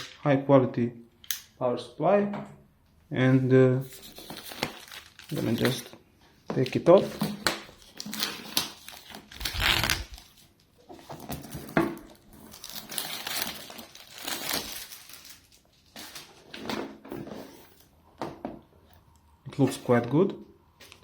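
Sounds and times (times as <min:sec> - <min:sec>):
plastic wrapping torn and crumpled: 0:03.9 - 0:05.9, 0:07.2 - 0:16.6.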